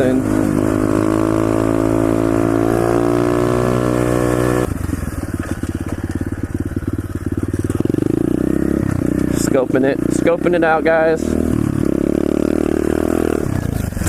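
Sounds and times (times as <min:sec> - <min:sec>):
motorbike engine revving: 0:00.0 - 0:14.0.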